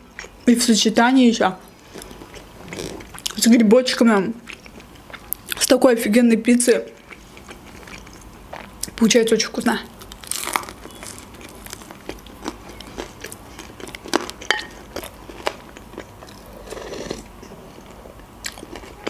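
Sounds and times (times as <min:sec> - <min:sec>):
chewing with mouth clicks: 0:00.0 - 0:00.5, 0:01.7 - 0:03.6, 0:04.4 - 0:05.7, 0:06.8 - 0:09.0, 0:10.0 - 0:19.0.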